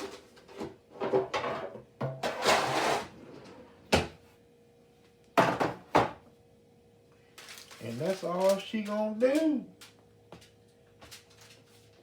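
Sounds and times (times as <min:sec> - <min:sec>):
baking pan scraping on metal sheet: 0:01.1 - 0:03.2.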